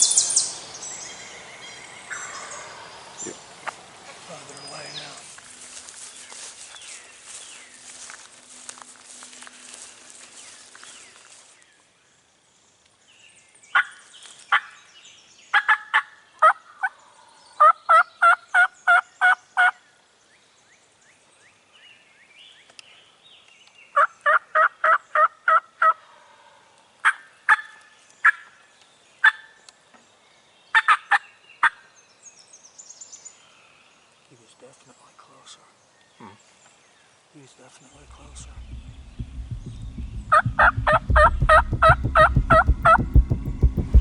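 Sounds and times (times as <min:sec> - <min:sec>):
turkey clucking: 0:40.3 - 0:43.0.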